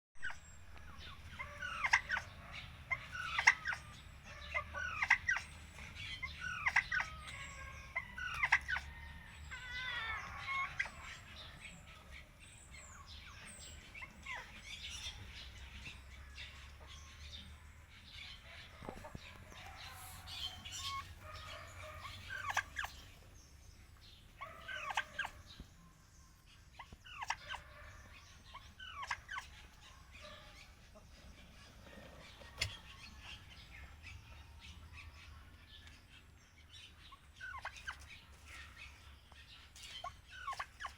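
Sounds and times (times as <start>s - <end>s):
small birds chirping: 0.2s - 40.9s
fowl calling: 1.3s - 5.6s, 18.5s - 23.0s.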